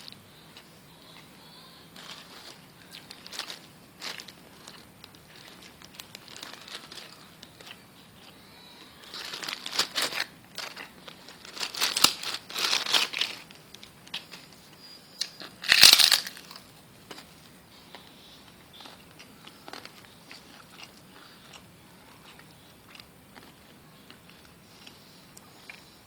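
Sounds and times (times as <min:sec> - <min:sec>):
packaging crinkling and rustling: 0:02.0 - 0:07.8, 0:09.0 - 0:14.6, 0:15.3 - 0:17.3.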